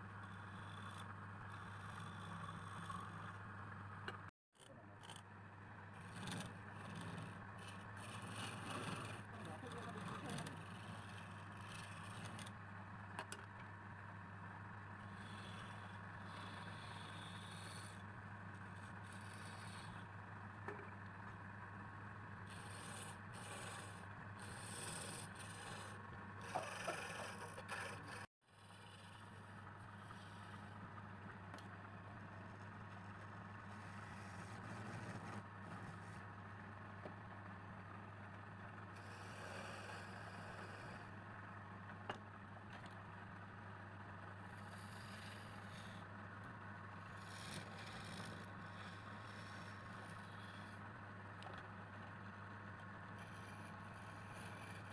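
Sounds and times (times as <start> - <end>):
tool scraping spinning workpiece: 5.9 - 12.6, 15.0 - 21.0, 22.4 - 30.8, 32.4 - 36.2, 47.0 - 50.8, 53.1 - 54.9.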